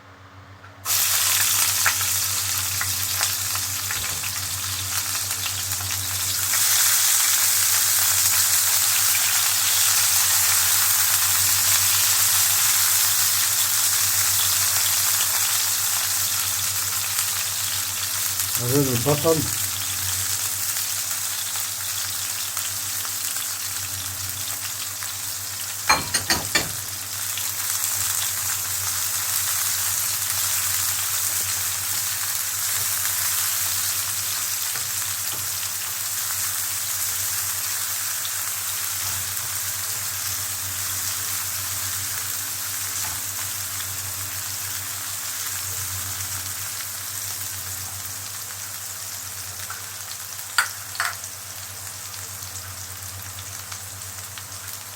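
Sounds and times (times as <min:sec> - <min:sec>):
vegetables sizzling in a pan: 0:00.8 - 0:54.9
utensil knocking against pan: 0:25.9 - 0:26.8.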